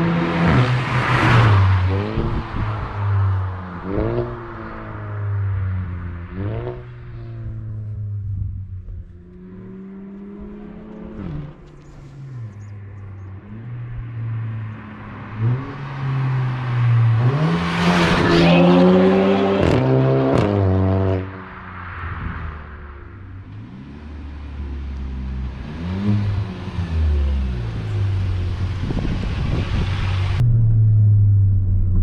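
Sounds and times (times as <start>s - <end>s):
car engine accelerating hard: 23.4s - 32.0s.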